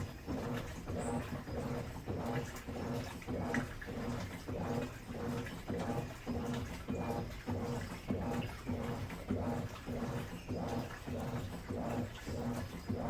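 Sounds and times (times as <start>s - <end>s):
washing machine motor agitating: 0.0s - 13.0s
water sloshing: 0.0s - 13.0s.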